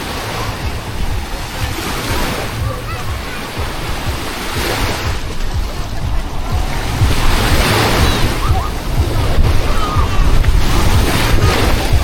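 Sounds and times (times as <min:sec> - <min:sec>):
sea surf rushing: 0:00.0 - 0:12.0
wind buffeting microphone: 0:00.0 - 0:12.0.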